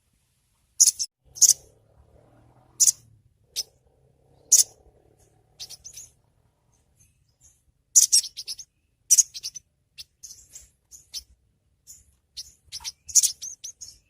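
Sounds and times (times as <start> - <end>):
bird chirping: 0.8 - 14.0.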